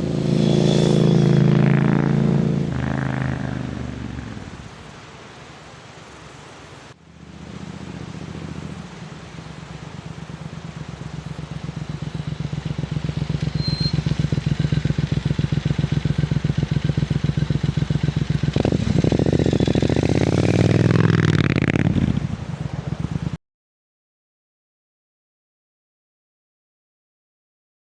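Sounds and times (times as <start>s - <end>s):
motorcycle passing by: 0.0s - 4.7s, 7.1s - 23.4s.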